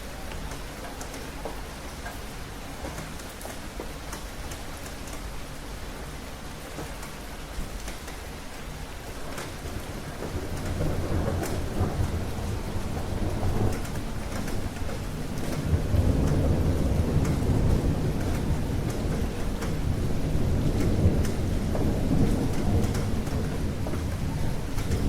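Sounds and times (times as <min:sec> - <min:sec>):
steady rain: 0:00.0 - 0:25.0
rolling thunder rumble: 0:09.2 - 0:25.0.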